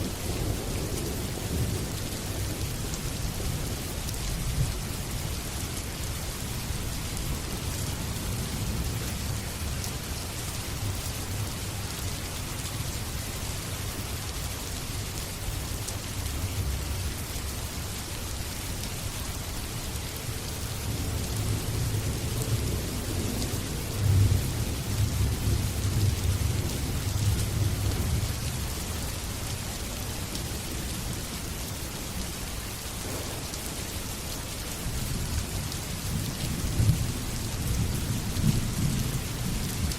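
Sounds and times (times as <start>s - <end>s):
steady rain falling: 0.0s - 39.9s
low roll of thunder: 33.0s - 35.1s.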